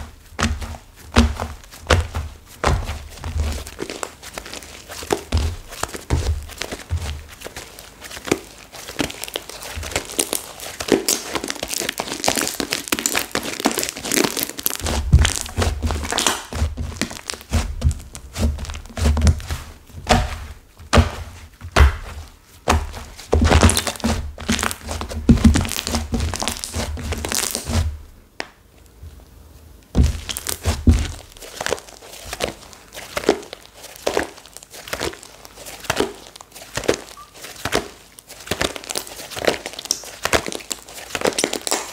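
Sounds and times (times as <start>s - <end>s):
slime crackling and crunching: 0.0s - 28.0s, 30.0s - 41.9s
dull thumps of pressing: 15.0s - 28.0s.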